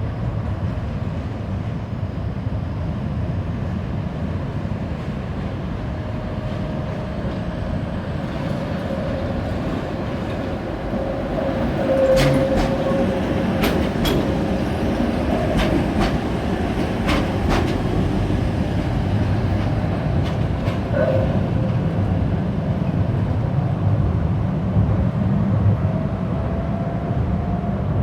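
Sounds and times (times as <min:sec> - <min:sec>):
tram rumbling on rails: 0:00.0 - 0:28.0
wheels clicking over rail joints: 0:13.6 - 0:14.5.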